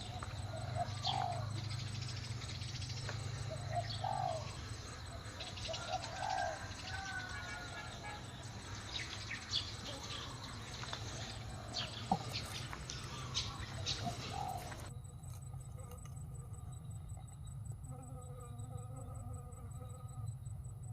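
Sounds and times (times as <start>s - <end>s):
birds chirping: 0.0s - 15.7s
steady low hum: 0.0s - 20.9s.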